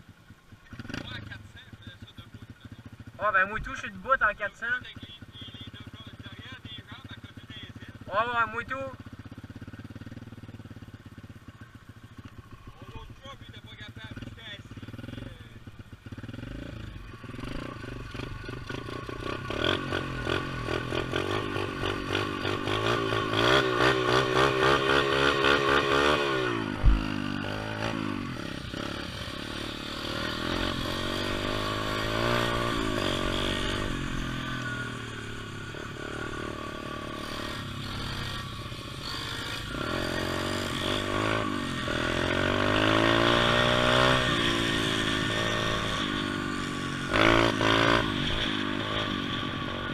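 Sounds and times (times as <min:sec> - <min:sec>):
pit bike engine revving: 0:00.6 - 0:01.5, 0:02.3 - 0:49.9
sharp thump: 0:26.8 - 0:27.3.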